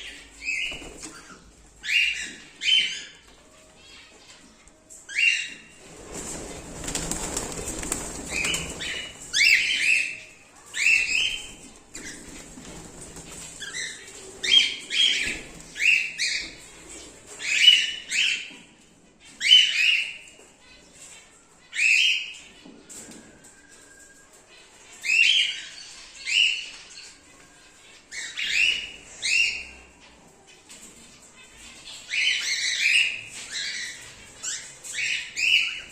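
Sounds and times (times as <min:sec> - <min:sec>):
wing flapping rustle: 0:05.8 - 0:09.4
cockatiels chirping calls: 0:31.6 - 0:35.9.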